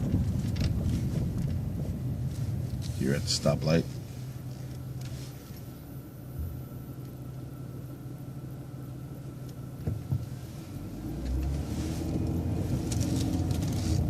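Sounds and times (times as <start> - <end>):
bus engine idling: 0.0 - 14.0.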